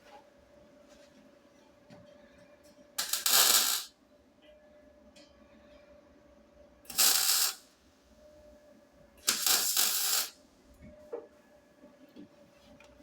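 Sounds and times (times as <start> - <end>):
welding arc crackling: 3.0 - 3.9, 6.9 - 7.6, 9.3 - 10.4.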